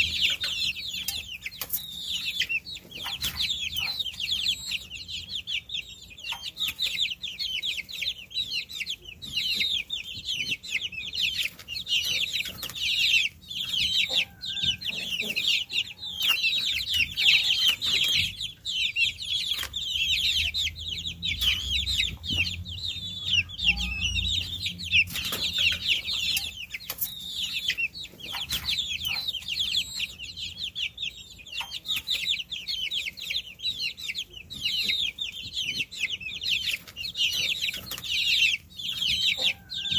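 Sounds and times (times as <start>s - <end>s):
baby chicks peeping: 0.0s - 39.9s
faint low rumble: 20.0s - 26.3s.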